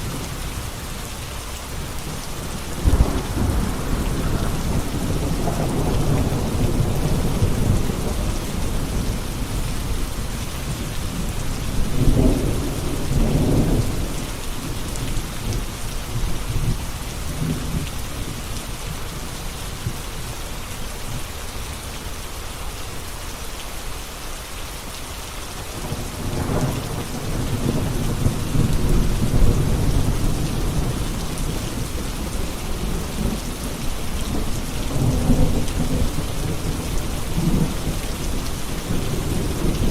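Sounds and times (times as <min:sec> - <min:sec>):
steady rain falling: 0:00.0 - 0:39.9
rolling thunder: 0:01.7 - 0:18.4, 0:25.8 - 0:39.9.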